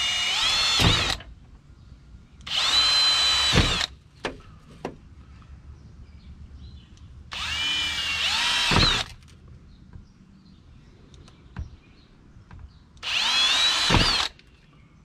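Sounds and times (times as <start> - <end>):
cordless drill boring into plastic pipe: 0.0 - 1.2, 7.4 - 9.1, 13.0 - 14.4.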